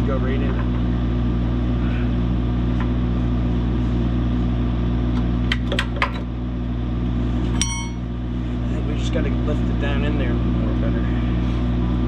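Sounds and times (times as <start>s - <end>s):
metal knocks and clinks: 7.6s - 8.1s.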